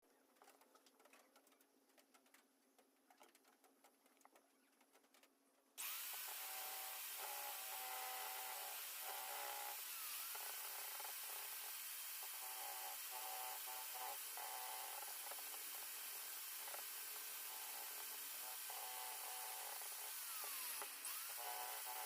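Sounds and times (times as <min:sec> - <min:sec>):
light clicks and taps: 0:00.3 - 0:05.4
drill router cutting wood: 0:05.8 - 0:22.0.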